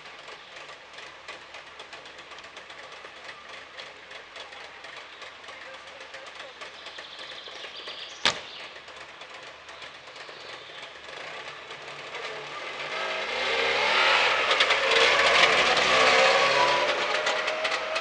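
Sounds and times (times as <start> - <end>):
two-stroke car engine revving: 0.0 - 18.0.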